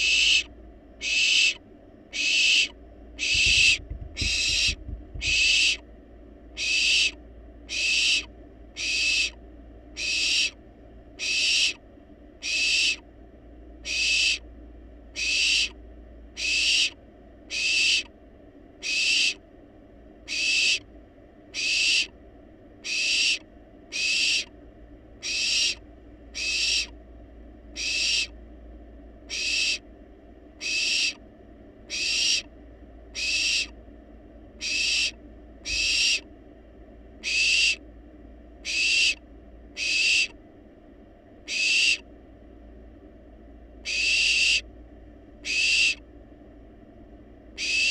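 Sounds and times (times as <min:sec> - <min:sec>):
owl chick hissing begging call: 0:00.0 - 0:05.8, 0:06.6 - 0:09.3, 0:10.0 - 0:10.6, 0:11.2 - 0:11.8, 0:12.4 - 0:13.0, 0:13.8 - 0:14.4, 0:15.2 - 0:15.8, 0:16.4 - 0:18.1, 0:18.8 - 0:19.4, 0:20.3 - 0:20.9, 0:21.6 - 0:22.1, 0:22.8 - 0:24.5, 0:25.2 - 0:25.8, 0:26.4 - 0:26.9, 0:27.8 - 0:28.3, 0:29.3 - 0:29.8, 0:30.6 - 0:31.2, 0:31.9 - 0:32.5, 0:33.2 - 0:33.7, 0:34.6 - 0:36.2, 0:37.2 - 0:37.8, 0:38.6 - 0:39.2, 0:39.8 - 0:40.3, 0:41.5 - 0:42.0, 0:43.8 - 0:44.6, 0:45.4 - 0:46.0, 0:47.6 - 0:47.9.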